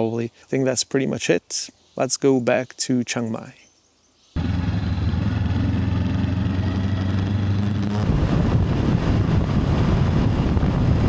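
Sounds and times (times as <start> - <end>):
motorbike engine running: 4.4 - 11.0.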